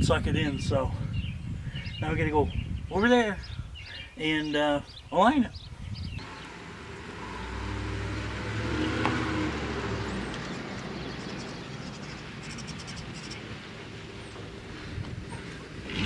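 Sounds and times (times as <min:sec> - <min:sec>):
vehicle engine hum: 0:06.2 - 0:16.0.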